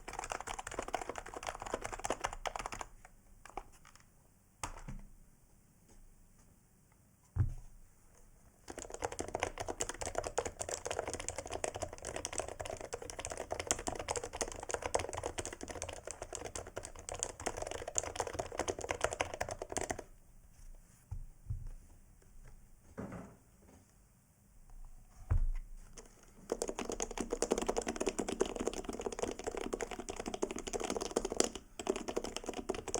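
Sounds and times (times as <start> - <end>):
keyboard typing: 0.0 - 4.9, 8.7 - 20.1, 25.9 - 32.9.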